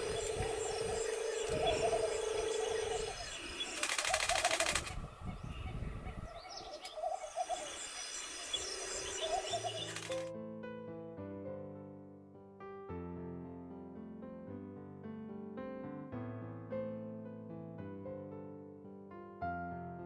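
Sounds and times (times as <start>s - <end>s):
wild birds calling: 0.0s - 10.3s.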